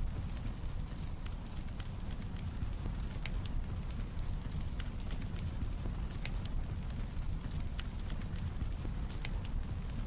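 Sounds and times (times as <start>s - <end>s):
cricket chirping: 0.0s - 6.2s
campfire crackling and popping: 0.0s - 10.0s.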